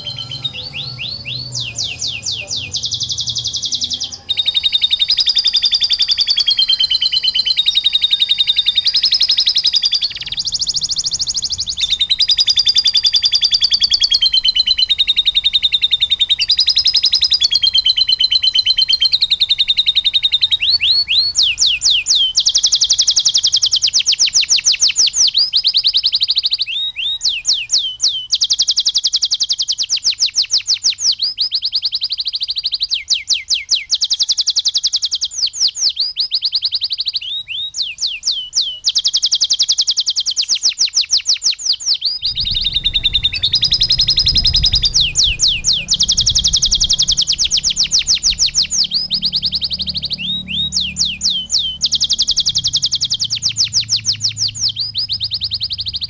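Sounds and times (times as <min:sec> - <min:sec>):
canary singing trills: 0:00.0 - 0:56.0
low rumble: 0:42.2 - 0:52.8.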